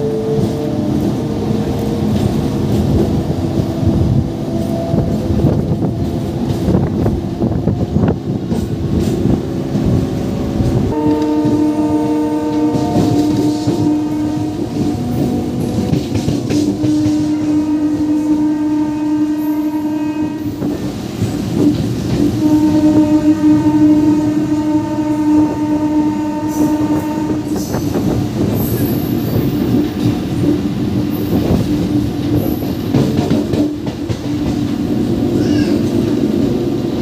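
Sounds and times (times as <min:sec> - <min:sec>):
train rumbling with knocks: 0:00.0 - 0:37.0
train horn blast: 0:09.0 - 0:20.8, 0:22.2 - 0:29.5.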